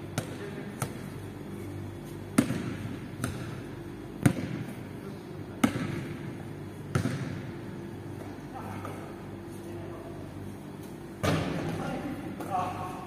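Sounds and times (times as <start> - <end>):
basketball bouncing in hall: 0.0 - 1.2, 2.3 - 9.1, 11.2 - 12.8
steady low hum: 0.0 - 13.0.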